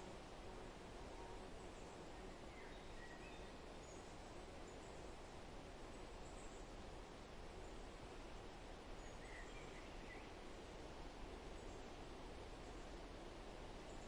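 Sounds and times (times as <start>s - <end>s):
soft background hiss: 0.0s - 14.0s
faint bird chirps: 1.2s - 5.2s, 9.0s - 10.5s.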